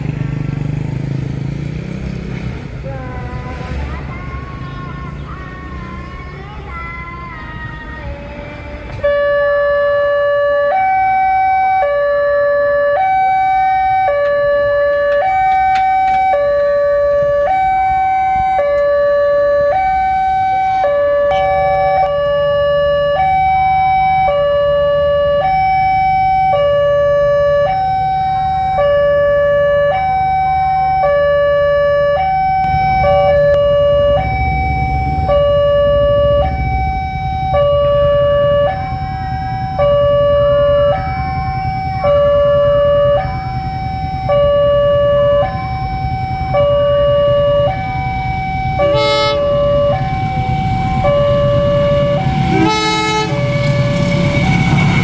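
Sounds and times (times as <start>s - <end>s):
low train rumble: 0.0s - 24.3s, 32.2s - 55.0s
two-tone crossing alarm: 8.0s - 55.0s
horn blast: 48.8s - 55.0s.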